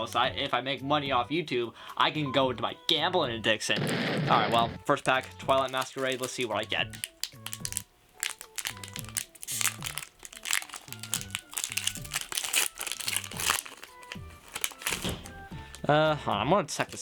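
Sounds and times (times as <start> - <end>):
foil wrapper crinkling: 3.8 - 15.9.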